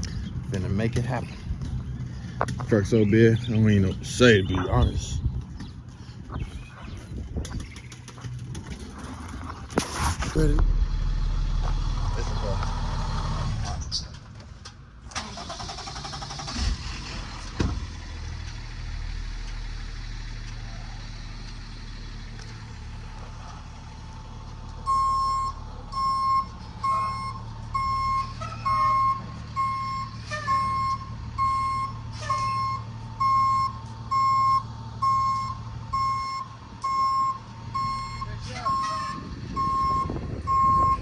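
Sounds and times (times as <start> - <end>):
truck engine running: 0.0 - 41.0
truck reversing alarm beeps: 24.8 - 41.0.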